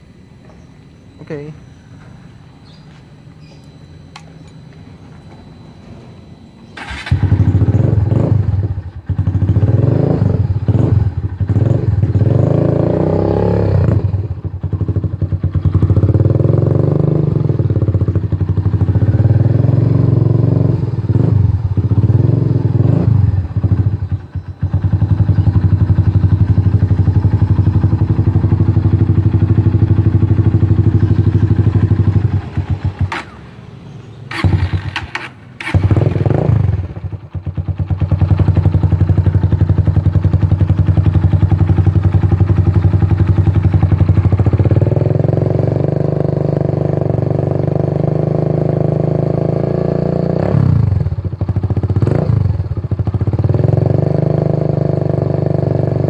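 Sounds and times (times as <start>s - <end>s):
motorcycle engine revving: 6.6s - 56.0s.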